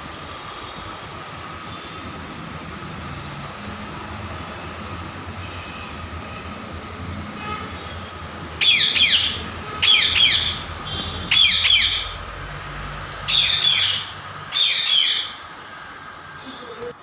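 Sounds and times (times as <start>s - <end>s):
parrot squawking: 8.6s - 12.2s, 13.2s - 15.5s.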